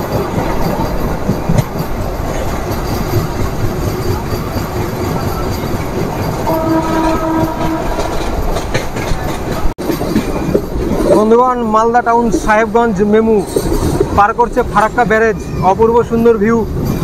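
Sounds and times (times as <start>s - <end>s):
train wheels rumbling and knocking: 0.0s - 17.0s
train horn: 6.4s - 8.3s.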